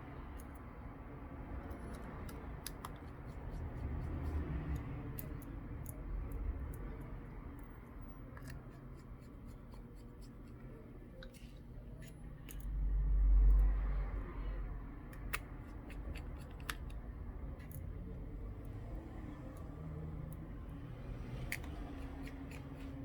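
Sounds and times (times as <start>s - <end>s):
screwdriver clicking on tiny screws: 1.6s - 7.1s, 21.4s - 23.0s.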